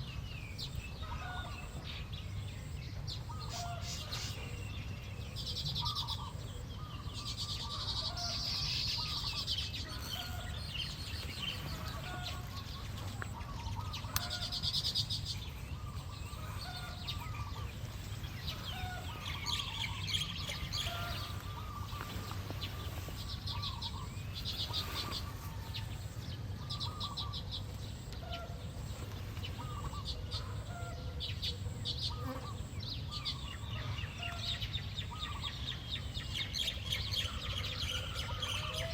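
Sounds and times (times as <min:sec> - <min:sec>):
steady low rumble: 0:09.2 - 0:28.0.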